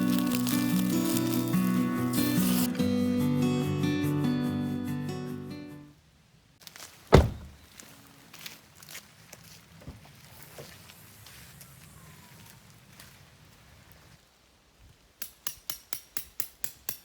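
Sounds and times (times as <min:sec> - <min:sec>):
background music: 0:00.0 - 0:05.9
heavy thud: 0:07.1 - 0:07.6.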